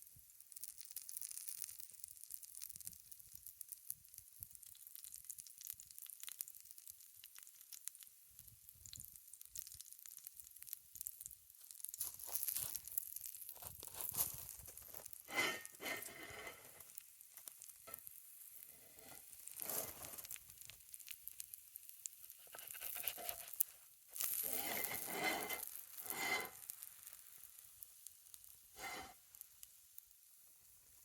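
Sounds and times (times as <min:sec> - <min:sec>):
fire crackles: 0:00.0 - 0:31.0
sizzling over a campfire: 0:00.0 - 0:31.0.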